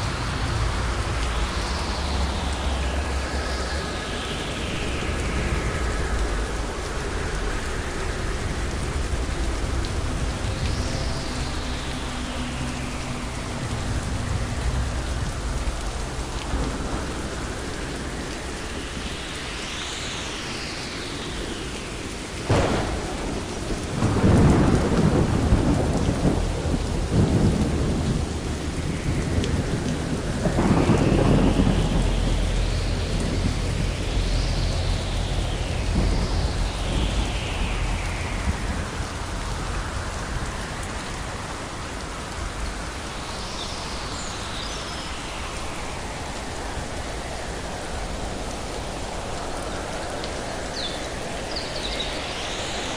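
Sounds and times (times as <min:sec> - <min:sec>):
steady rain: 0:00.0 - 0:52.9
rolling thunder: 0:22.3 - 0:43.1
thunder crack: 0:22.5 - 0:39.0.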